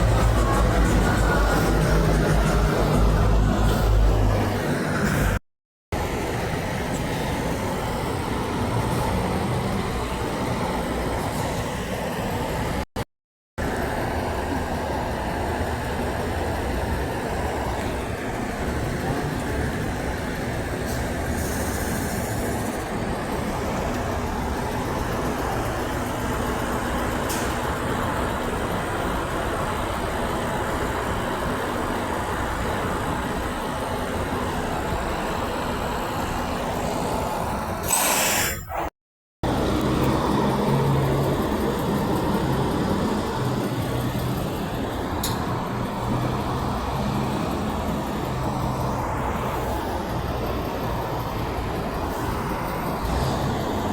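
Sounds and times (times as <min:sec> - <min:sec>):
heavy trucks passing: 0:00.0 - 0:05.4, 0:06.0 - 0:12.8, 0:13.6 - 0:38.8, 0:39.4 - 0:53.9
low engine hum: 0:00.0 - 0:05.4
road traffic noise: 0:00.0 - 0:13.0, 0:13.6 - 0:53.9.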